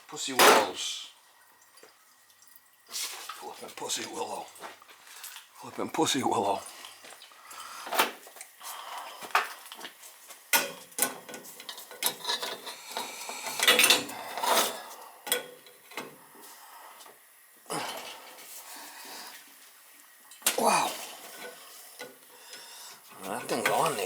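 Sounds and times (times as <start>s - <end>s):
metal tools clanking on pipes: 0.2s - 0.9s, 10.5s - 16.2s, 20.4s - 24.0s.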